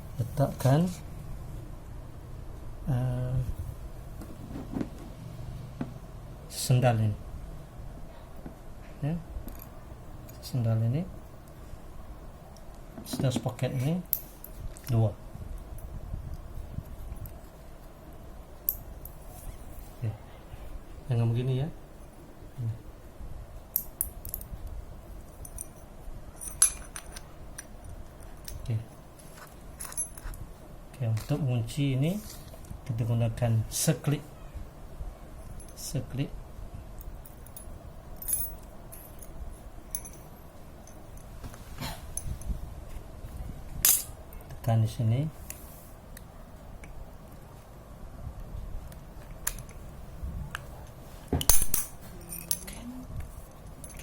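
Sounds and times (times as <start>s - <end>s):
metal sprockets clinking: 37.2s - 41.0s.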